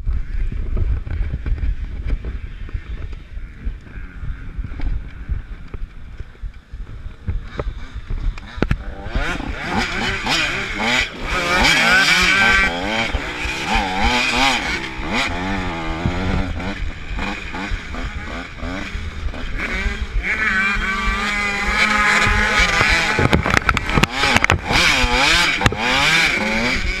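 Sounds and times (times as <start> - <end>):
motocross bikes revving: 0.2 - 27.0
sharp knocks or crackles: 22.6 - 24.8.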